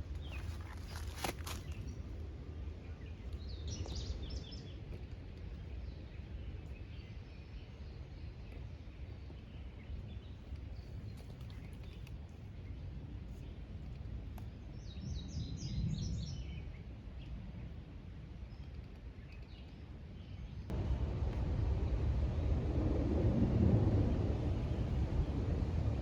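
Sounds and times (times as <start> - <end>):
small birds chirping: 0.0 - 2.1, 2.8 - 17.4
steady low rumble: 20.2 - 26.0.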